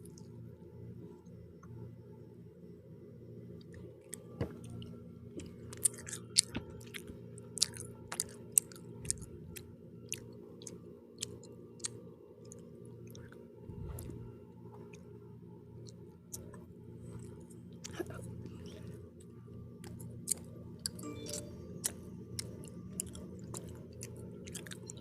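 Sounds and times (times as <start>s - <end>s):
low hum: 0.0s - 11.5s, 12.5s - 25.0s
chewing with wet mouth clicks: 3.6s - 13.4s, 15.8s - 25.0s.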